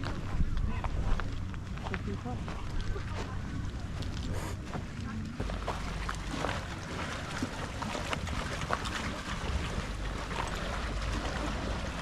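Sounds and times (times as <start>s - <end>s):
wind rumbling on microphone: 0.0s - 12.0s
sea water washing on rocks: 4.0s - 12.0s.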